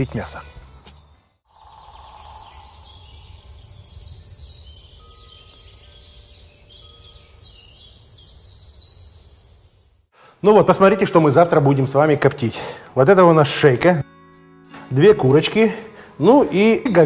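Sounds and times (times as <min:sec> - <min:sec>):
small birds chirping: 0:00.6 - 0:09.8.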